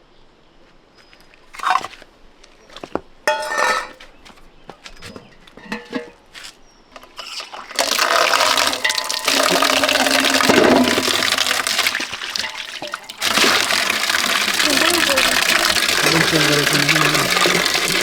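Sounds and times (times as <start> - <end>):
water rushing and splashing: 7.5 - 18.0.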